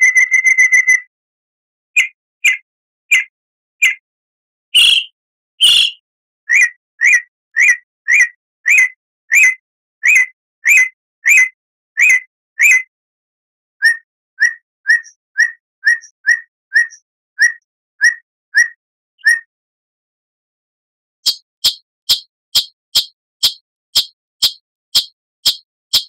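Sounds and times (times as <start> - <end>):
songbird sharp calls: 2.0 - 4.0, 4.7 - 12.9, 13.8 - 19.5.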